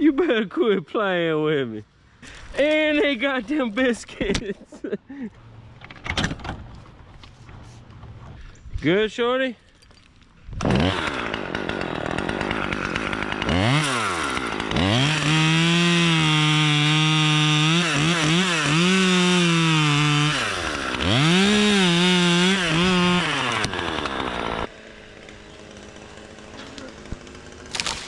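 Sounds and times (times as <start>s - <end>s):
chainsaw revving: 10.6s - 28.0s.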